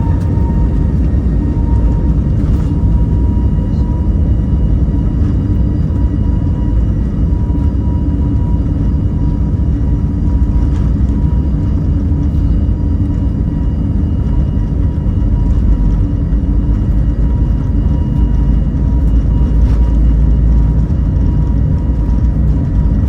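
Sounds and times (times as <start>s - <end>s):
aircraft cabin engine rumble: 0.0s - 23.0s
faint whining tones: 0.0s - 23.0s.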